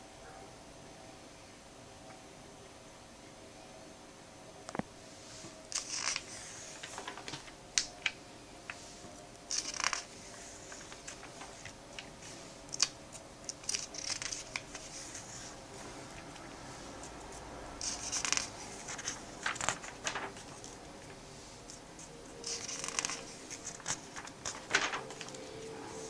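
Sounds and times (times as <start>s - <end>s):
paper and plastic rustling: 5.3s - 26.0s.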